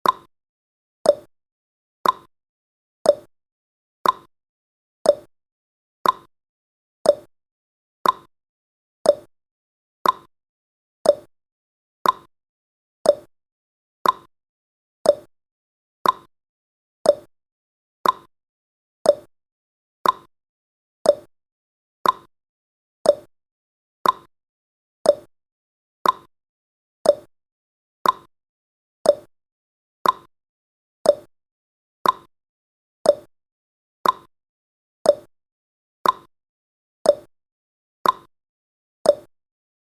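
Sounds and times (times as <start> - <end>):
countdown timer ticking: 7.1 - 7.3, 9.1 - 9.3, 11.1 - 11.3, 13.1 - 13.3, 15.1 - 15.3, 17.1 - 17.3, 19.1 - 19.3, 21.1 - 21.3, 23.1 - 23.3, 24.0 - 24.3, 25.1 - 25.3, 26.0 - 26.3, 27.1 - 27.3, 29.1 - 29.3, 30.0 - 30.3, 31.1 - 31.3, 32.0 - 32.3, 33.1 - 33.3, 34.0 - 34.3, 35.1 - 35.3, 36.0 - 36.3, 37.1 - 37.3, 38.0 - 38.3, 39.1 - 39.3.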